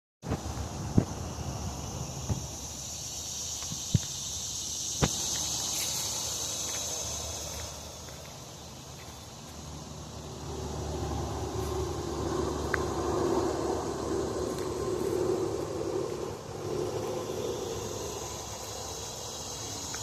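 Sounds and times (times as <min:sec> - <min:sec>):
insects droning: 0:00.2 - 0:20.0
sharp snaps: 0:05.0 - 0:05.5
footsteps: 0:05.0 - 0:09.7.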